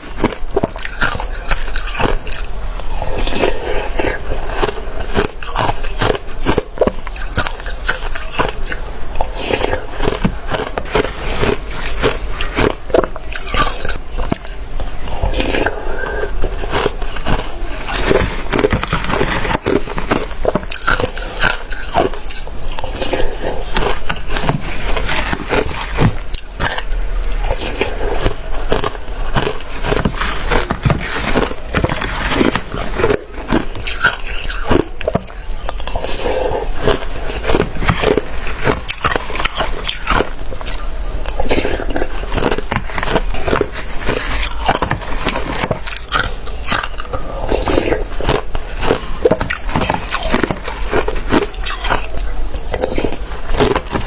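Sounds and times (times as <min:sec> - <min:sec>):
chewing slushy ice: 0:00.0 - 0:54.0.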